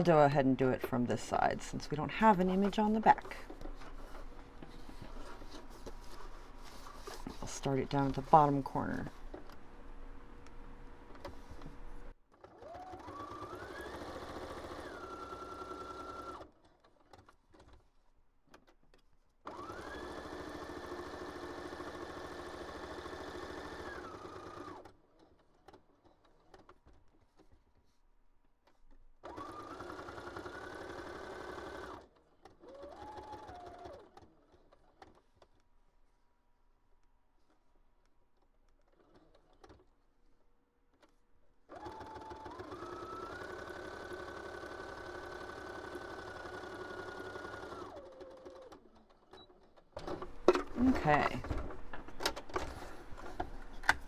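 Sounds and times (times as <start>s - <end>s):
sewing machine motor whine: 12.4s - 16.5s, 19.5s - 25.0s, 29.2s - 34.0s, 41.7s - 49.5s.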